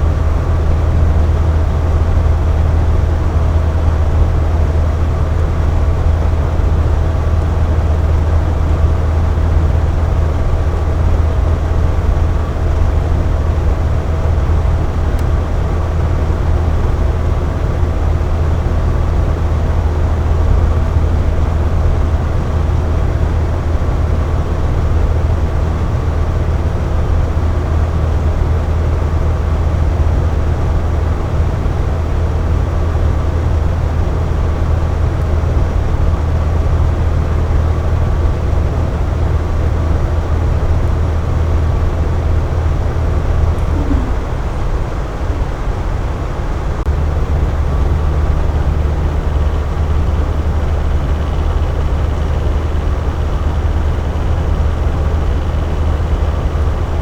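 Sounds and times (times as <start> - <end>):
faint steady whine: 32.6 - 57.0
air conditioner humming: 39.9 - 47.8
rush of airflow: 43.4 - 45.6.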